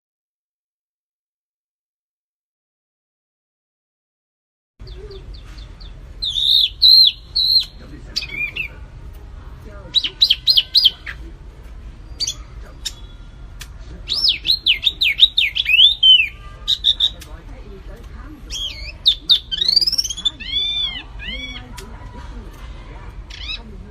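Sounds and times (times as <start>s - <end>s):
songbird singing whistled notes: 4.8s - 8.7s, 9.9s - 11.3s, 14.1s - 17.3s, 18.5s - 21.7s.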